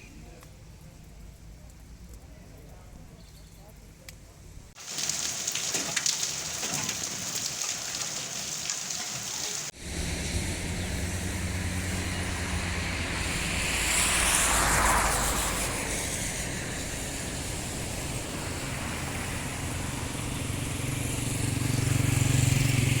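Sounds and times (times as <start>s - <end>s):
road noise hiss: 3.8s - 23.0s
vehicle engine hum: 9.7s - 23.0s
vehicle passing: 9.7s - 23.0s.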